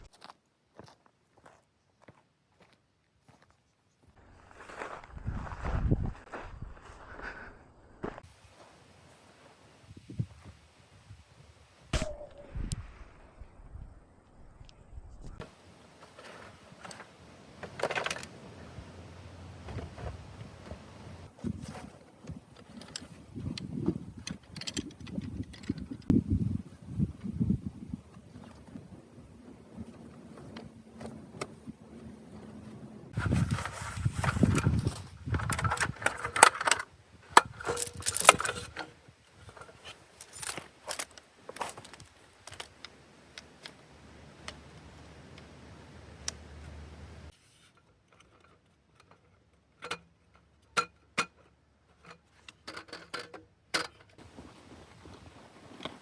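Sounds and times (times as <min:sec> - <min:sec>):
objects rustling: 0:15.4 - 0:23.6, 0:29.7 - 0:47.6
metallic clinks and clatter: 0:37.6 - 0:38.7.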